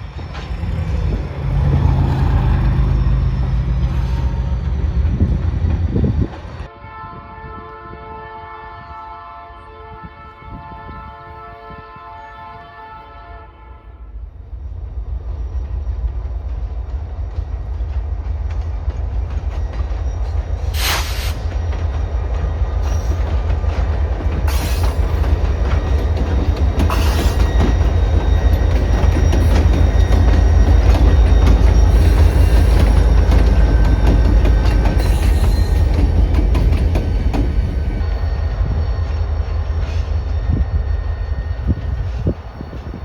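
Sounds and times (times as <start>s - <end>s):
diesel locomotive engines rumbling: 0.0s - 43.0s
locomotive air horn: 6.7s - 14.2s.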